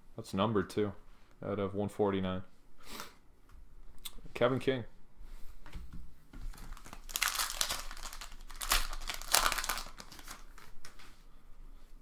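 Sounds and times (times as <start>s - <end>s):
foil wrapper crinkling and tearing: 6.5s - 11.1s.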